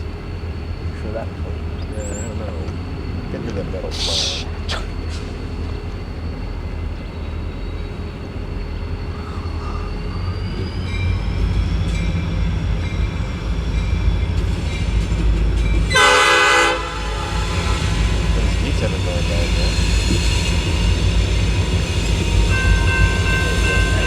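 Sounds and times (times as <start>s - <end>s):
train rumbling: 0.0s - 24.0s
locomotive horn: 15.9s - 19.5s.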